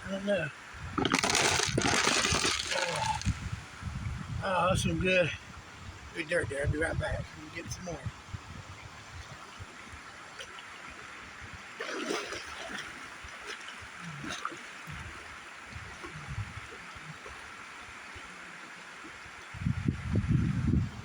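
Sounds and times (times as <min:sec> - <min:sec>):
river water running: 0:00.0 - 0:04.1, 0:07.3 - 0:19.7
water splashes: 0:00.9 - 0:03.5, 0:11.7 - 0:19.2.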